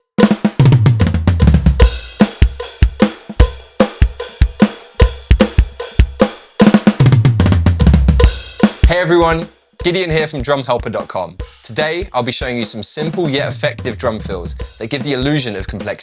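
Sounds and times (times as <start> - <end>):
bass drum and snare beat: 0.0 - 16.0
tom fill: 0.0 - 16.0.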